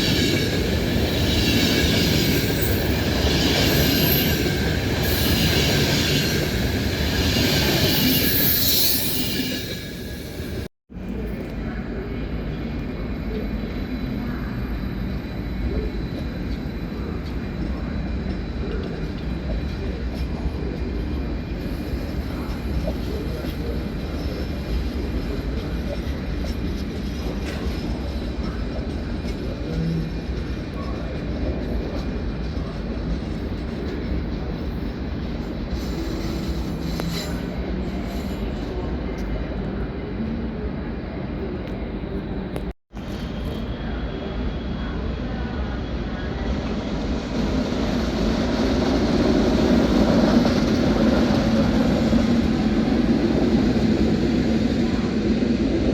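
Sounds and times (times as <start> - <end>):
high wheel squeal: 0.0 - 10.7
rail vehicle rumbling on track: 0.0 - 55.9.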